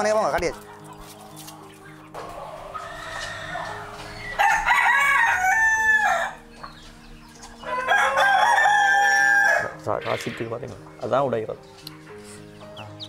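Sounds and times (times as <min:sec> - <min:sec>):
rooster crowing: 0:02.2 - 0:06.5, 0:07.6 - 0:09.8.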